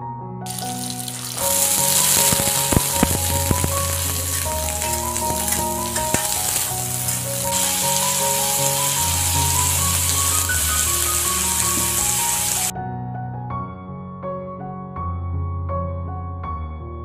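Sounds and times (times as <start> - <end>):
background music: 0.0 - 17.0
vegetables sizzling in a wok: 0.5 - 12.7.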